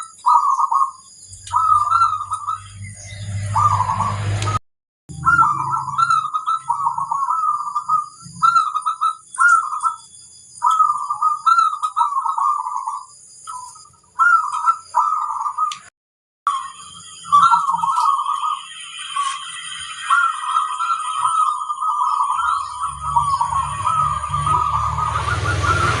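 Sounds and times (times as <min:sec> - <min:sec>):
dove cooing: 0:00.0 - 0:04.4, 0:05.1 - 0:10.0, 0:10.6 - 0:15.8, 0:17.3 - 0:26.0.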